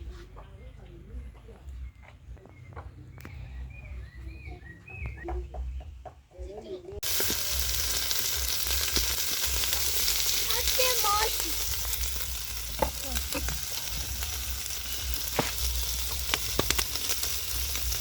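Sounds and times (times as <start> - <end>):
curry sizzling in a pot: 7.0 - 18.0.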